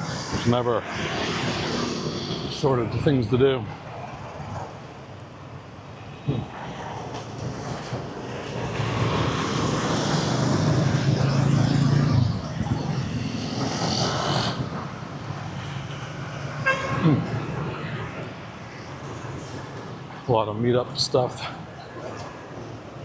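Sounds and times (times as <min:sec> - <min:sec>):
street traffic background: 0:00.0 - 0:23.0
vehicle engine passing close: 0:08.5 - 0:19.8.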